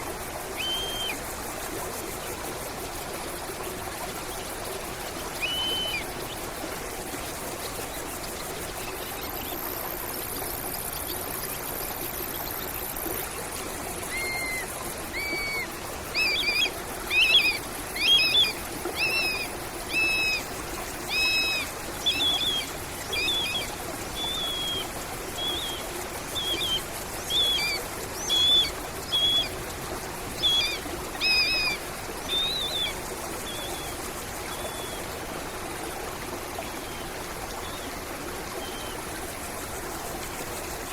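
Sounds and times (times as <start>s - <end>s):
stream water running: 0.0s - 40.9s
bird whistling calls: 0.6s - 1.2s, 5.4s - 6.1s, 14.1s - 25.8s, 26.4s - 29.5s, 30.4s - 32.9s.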